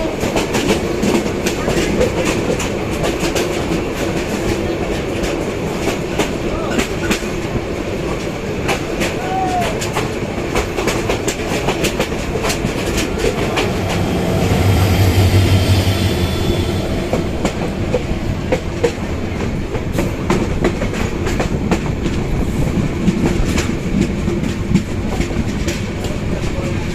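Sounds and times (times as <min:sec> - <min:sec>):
train wheels clattering over rail joints: 0:00.0 - 0:26.9
heavy low drone: 0:12.2 - 0:19.2.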